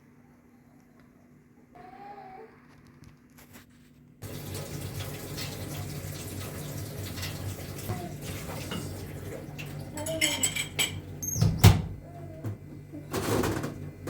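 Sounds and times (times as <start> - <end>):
water running from a tap: 4.2 - 11.3.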